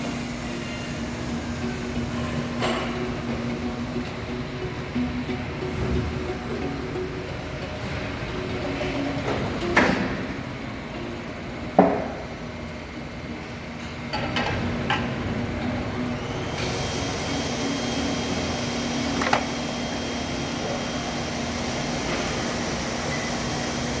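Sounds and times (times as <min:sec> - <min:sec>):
machine hum: 0:00.0 - 0:11.9.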